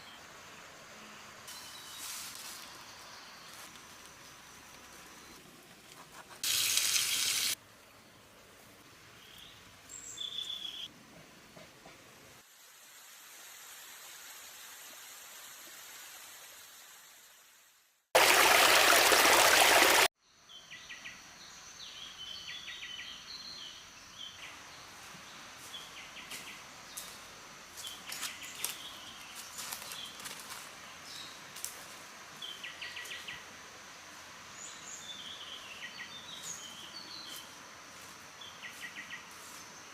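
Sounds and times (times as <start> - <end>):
bursts of rushing water-like noise: 18.2 - 20.1.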